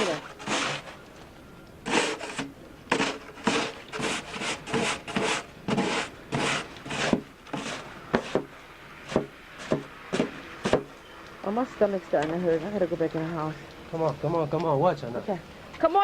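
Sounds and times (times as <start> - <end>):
snow scraping and crunching: 5.2 - 8.4.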